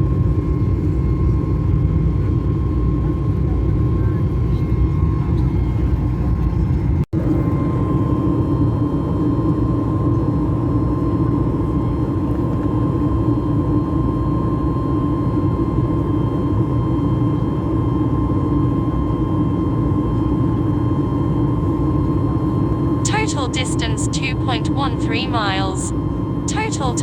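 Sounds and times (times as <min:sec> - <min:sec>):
constant hum tone: 0:22.7 - 0:27.0.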